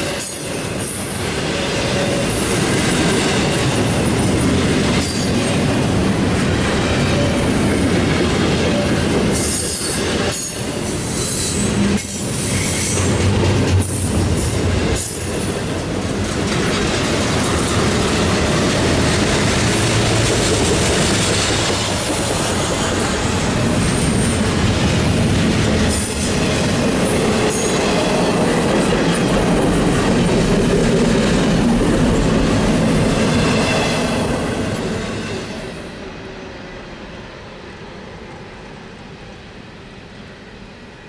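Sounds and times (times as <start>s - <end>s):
freight train wheels on rails: 0.0s - 41.0s.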